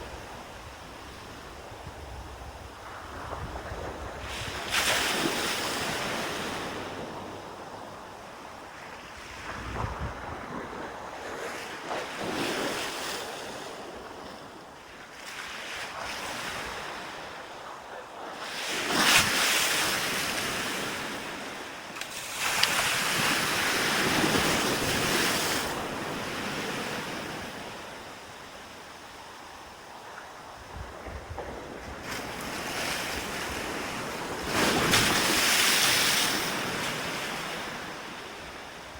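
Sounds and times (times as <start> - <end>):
sea waves breaking: 0.0 - 38.9
wind rumbling on microphone: 0.0 - 38.9.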